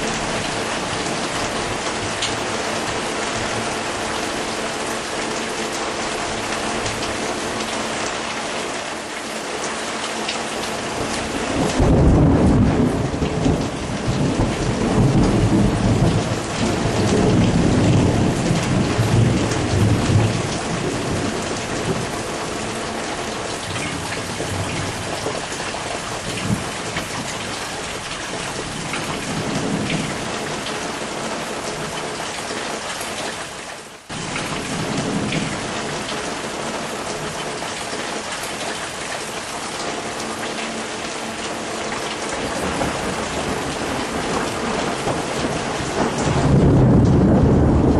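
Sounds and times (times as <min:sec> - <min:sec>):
heavy rain: 0:00.0 - 0:47.9
rolling thunder: 0:10.9 - 0:22.2, 0:28.4 - 0:30.4, 0:34.1 - 0:36.1, 0:42.3 - 0:47.9.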